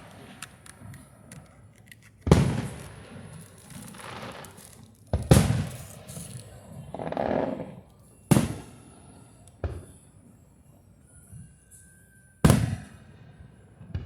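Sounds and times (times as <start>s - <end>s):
firework pops and crackles: 0.0s - 8.7s.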